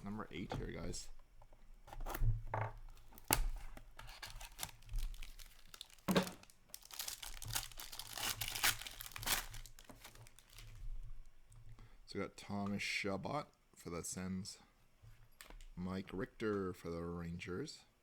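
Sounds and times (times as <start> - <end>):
plastic and foil wrapping tearing: 2.9 - 10.8.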